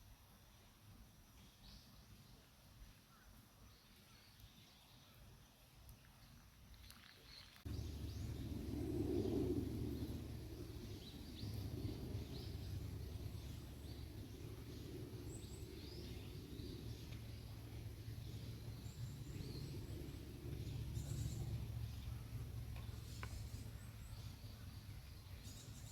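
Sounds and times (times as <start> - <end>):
small birds chirping: 3.1 - 25.9
low steady rumble: 7.6 - 25.9.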